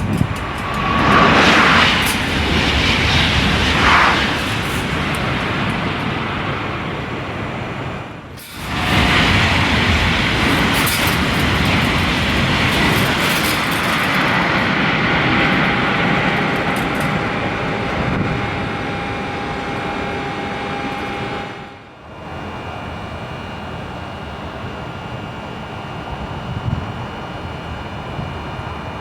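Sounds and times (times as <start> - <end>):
low rumble: 0.0 - 8.1
faint steady whine: 0.0 - 29.0
high-speed train passing: 0.0 - 29.0.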